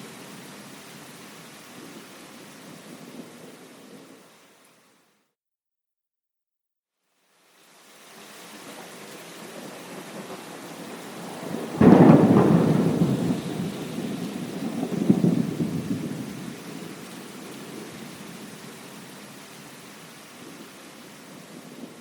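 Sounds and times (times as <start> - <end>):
steady rain: 0.0 - 5.2, 7.0 - 22.0
close thunderclap rumbling: 9.4 - 18.6.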